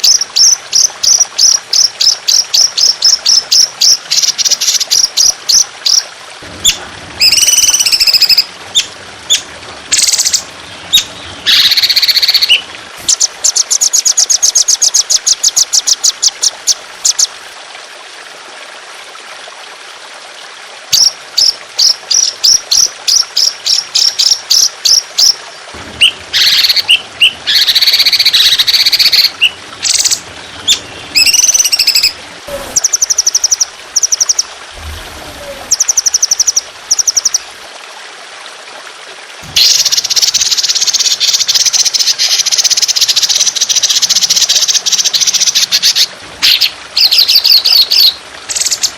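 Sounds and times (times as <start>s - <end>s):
water trickling: 0.0s - 48.9s
songbird rapid song and trill: 6.7s - 17.3s, 26.0s - 34.5s, 39.6s - 48.9s.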